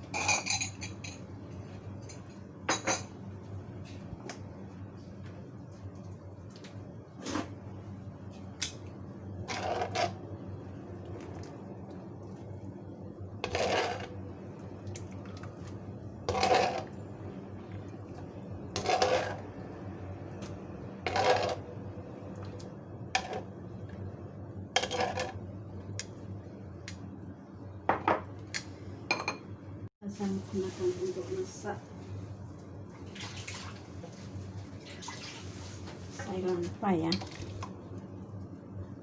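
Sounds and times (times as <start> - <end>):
steady low hum: 0.0 - 33.0
metal utensils clinking on cookware: 0.1 - 1.2.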